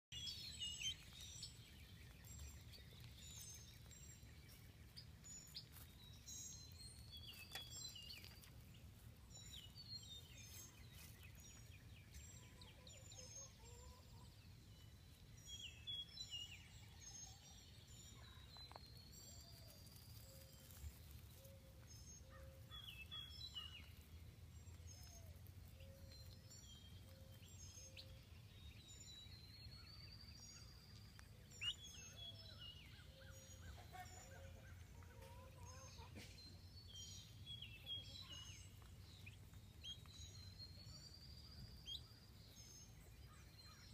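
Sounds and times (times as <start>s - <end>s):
faint bird peeps and chirps: 0.1s - 43.9s.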